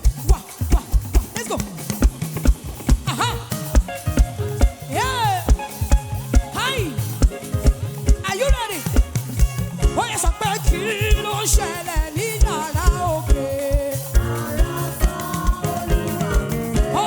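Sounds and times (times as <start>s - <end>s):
band playing: 0.0s - 17.0s
kick drum beat: 0.0s - 17.0s
people singing: 10.0s - 17.0s.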